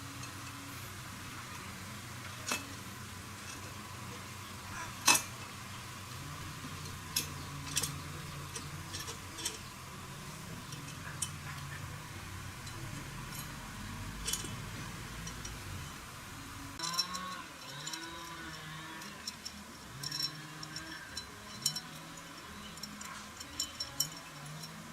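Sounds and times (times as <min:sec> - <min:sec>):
faint low hum: 0:00.0 - 0:24.9
metallic clicks of tools and parts: 0:02.2 - 0:02.8, 0:05.0 - 0:05.6, 0:06.6 - 0:11.9, 0:12.5 - 0:16.0, 0:16.8 - 0:24.9.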